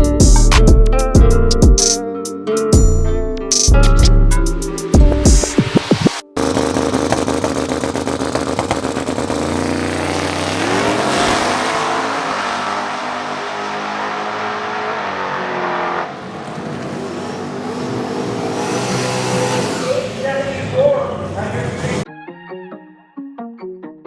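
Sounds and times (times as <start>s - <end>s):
drag racing car accelerating: 5.8s - 22.1s.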